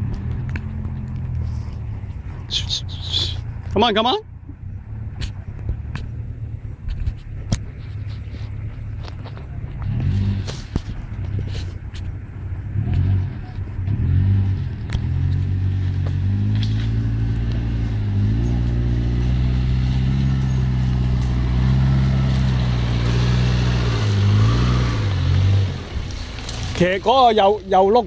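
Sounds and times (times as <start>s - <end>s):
engine pulling under load: 12.7s - 28.0s.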